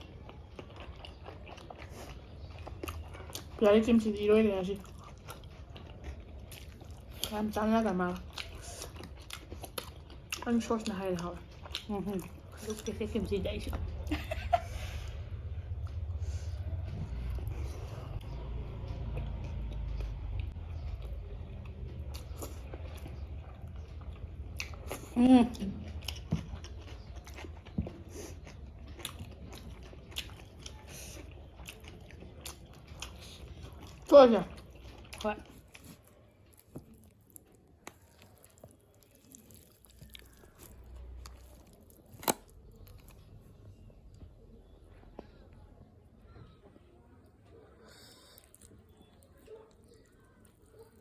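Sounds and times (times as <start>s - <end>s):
close chewing: 0.0s - 14.2s, 14.9s - 51.0s
low hum: 12.1s - 30.0s.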